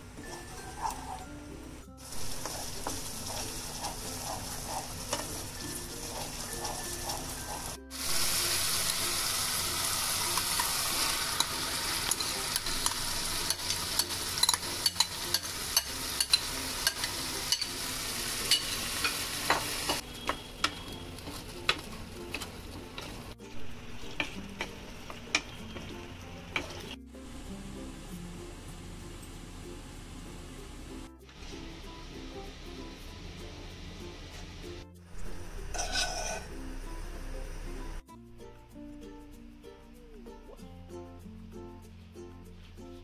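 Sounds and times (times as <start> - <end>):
wooden spatula scraping pan: 0.3 - 1.2, 2.2 - 7.8, 35.7 - 36.4
paste sizzling in hot oil: 2.0 - 21.6, 35.2 - 36.8.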